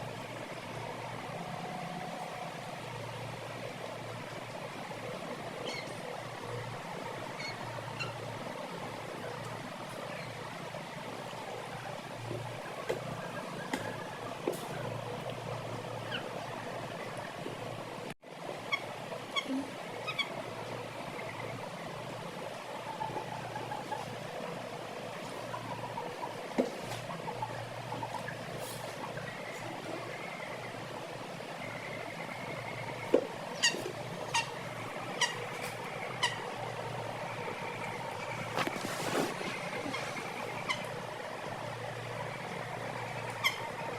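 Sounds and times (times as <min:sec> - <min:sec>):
steady background noise: 0:00.0 - 0:43.9
chickens calling: 0:31.6 - 0:43.9.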